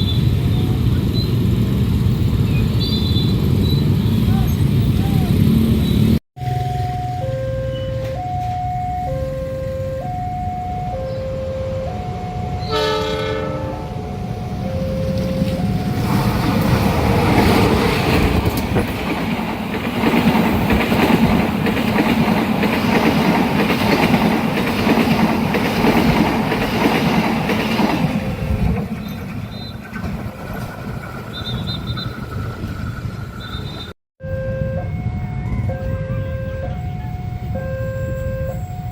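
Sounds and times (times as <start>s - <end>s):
train passing on rails: 0.0s - 34.0s, 34.7s - 38.9s
two-note crossing alarm: 6.4s - 16.2s, 34.2s - 38.9s
locomotive horn blast: 6.4s - 16.4s, 33.5s - 38.9s.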